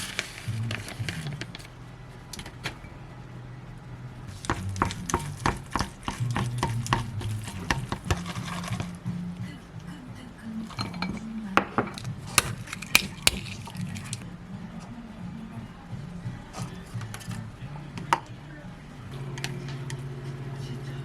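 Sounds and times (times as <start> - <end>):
utensil stirring noodles in cup: 0.0 - 2.5, 4.3 - 9.8, 10.4 - 14.3
clicks and scrapes: 4.3 - 9.0, 10.6 - 14.3.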